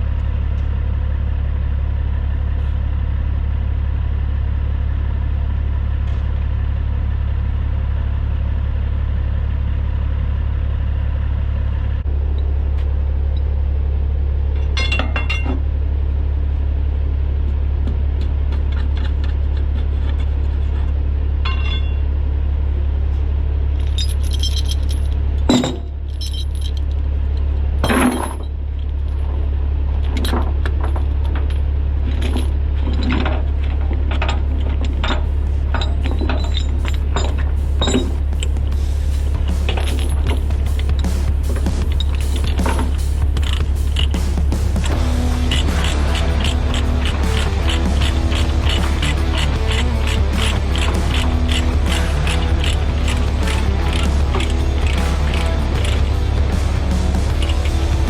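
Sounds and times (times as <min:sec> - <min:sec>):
truck diesel engine droning: 0:00.0 - 0:58.0
jingling and clinking rattles: 0:21.4 - 0:22.0, 0:23.8 - 0:27.0, 0:30.2 - 0:58.0.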